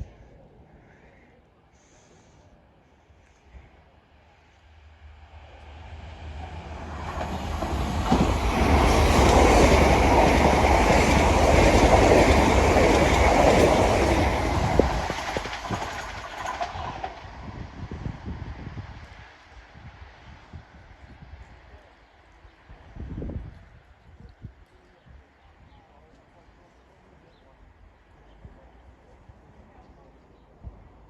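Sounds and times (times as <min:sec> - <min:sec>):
train passing on rails: 0:03.0 - 0:24.0.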